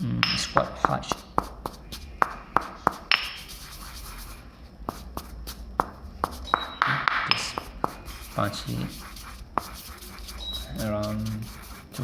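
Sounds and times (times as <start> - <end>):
stone pestle knocking in mortar: 0.2 - 3.5, 4.9 - 9.8
pestle grinding: 0.2 - 12.0.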